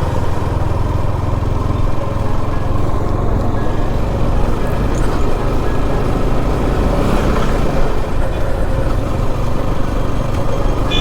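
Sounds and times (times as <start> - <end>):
motorcycle engine rumble: 0.0 - 11.0.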